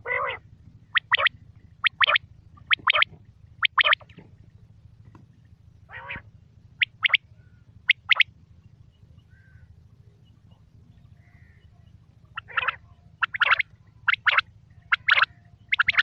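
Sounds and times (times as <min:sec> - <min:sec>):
quail calling sharp notes: 0:00.0 - 0:04.2, 0:05.9 - 0:08.3, 0:11.2 - 0:16.0
rough low bird call: 0:00.0 - 0:08.3, 0:08.9 - 0:16.0.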